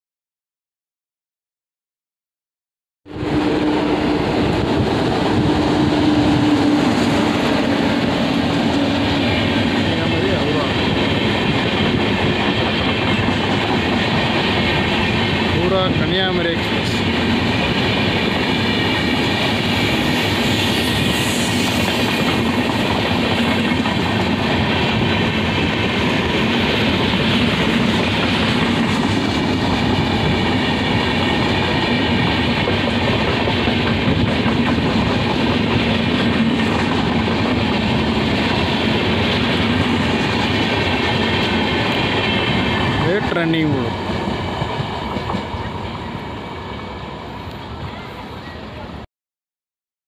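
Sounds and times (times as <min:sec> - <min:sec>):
train wheels clattering over rail joints: 0:16.7 - 0:45.7.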